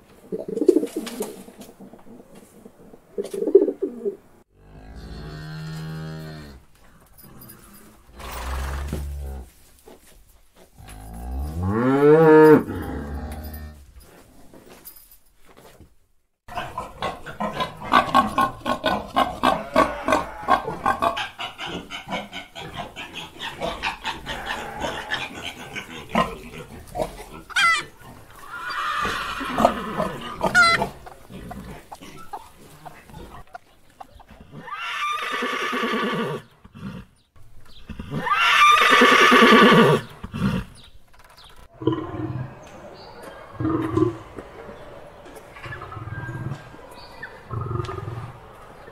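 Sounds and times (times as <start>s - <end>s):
calf mooing: 19.3s - 20.8s.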